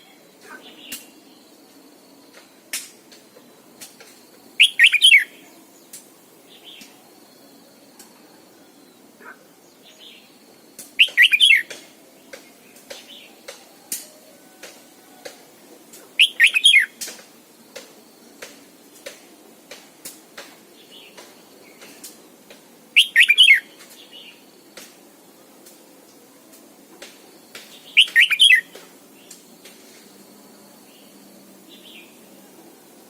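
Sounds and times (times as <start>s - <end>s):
bulbul singing: 4.6s - 7.0s, 9.8s - 14.0s, 15.9s - 19.2s, 22.9s - 24.4s, 27.5s - 29.4s.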